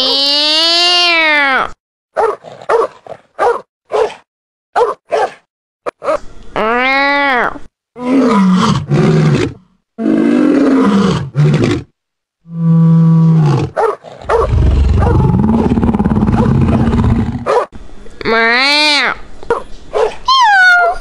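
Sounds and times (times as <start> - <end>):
lion roaring and growling: 8.0 - 11.9, 12.5 - 17.5.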